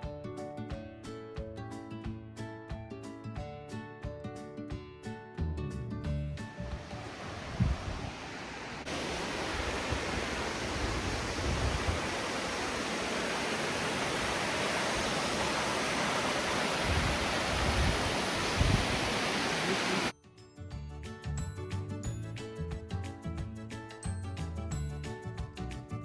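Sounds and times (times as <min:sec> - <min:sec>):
waterfall rushing: 0:06.7 - 0:20.1.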